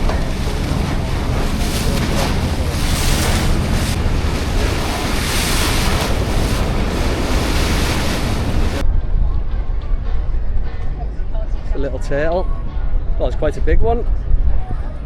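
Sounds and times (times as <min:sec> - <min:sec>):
sea water rushing past boat: 0:00.0 - 0:08.8
wind buffeting microphone: 0:00.0 - 0:15.0.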